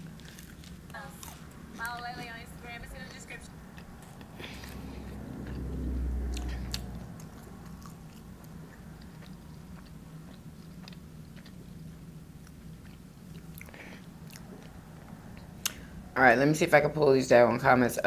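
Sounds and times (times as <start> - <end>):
chewing and mouth clicks: 0.1 - 2.0, 3.7 - 15.8
low rumble: 2.8 - 9.1.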